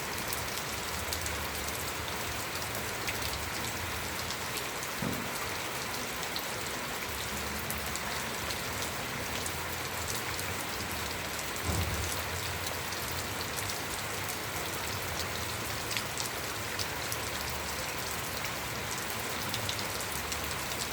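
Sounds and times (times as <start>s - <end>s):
rain pattering on a surface: 0.0s - 20.9s
low thump: 11.6s - 12.2s.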